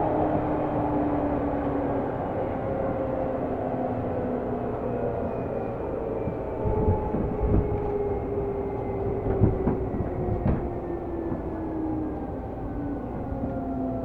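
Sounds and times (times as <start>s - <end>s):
wheels rumbling on rail: 0.0s - 14.0s
wheels knocking on rail joints: 6.3s - 14.0s.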